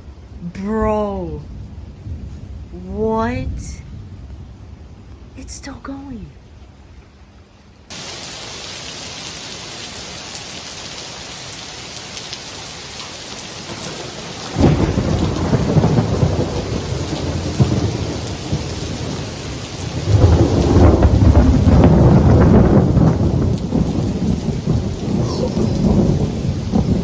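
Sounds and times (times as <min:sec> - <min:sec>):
thunder rumbling: 0:00.0 - 0:05.4, 0:13.4 - 0:27.0
heavy rain: 0:06.4 - 0:27.0.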